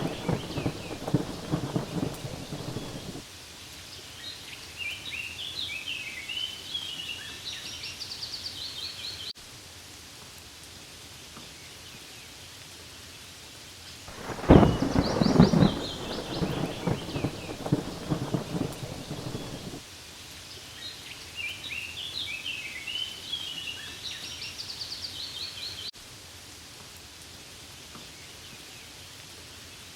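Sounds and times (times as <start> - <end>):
rolling thunder rumbles: 0.0 - 3.2, 14.1 - 19.8
steady rain falling: 0.0 - 29.9.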